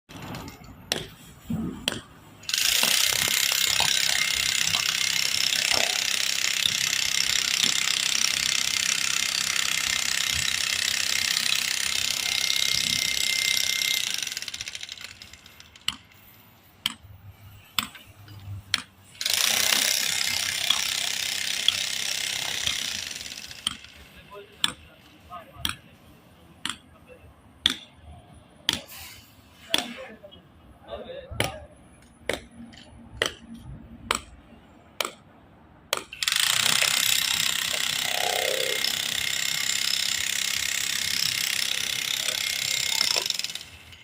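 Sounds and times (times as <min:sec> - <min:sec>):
power drill running: 0:02.5 - 0:15.8, 0:19.2 - 0:24.0, 0:36.2 - 0:43.9.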